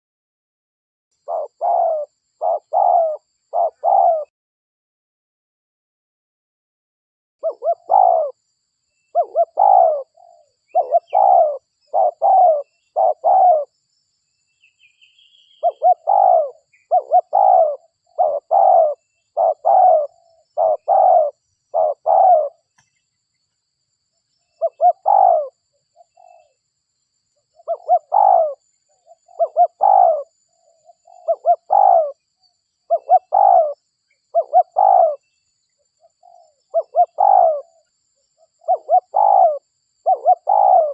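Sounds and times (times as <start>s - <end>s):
dove cooing: 1.2s - 4.3s, 7.4s - 8.4s, 9.1s - 13.7s, 15.5s - 22.8s, 24.6s - 26.6s, 27.5s - 32.2s, 32.9s - 35.3s, 36.0s - 40.9s
faint bird chirp: 1.2s - 4.3s, 7.4s - 40.9s.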